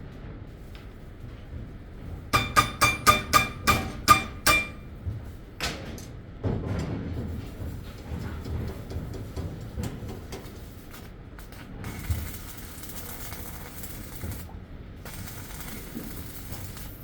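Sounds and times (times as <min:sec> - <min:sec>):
hammer striking metal: 0:02.4 - 0:04.9.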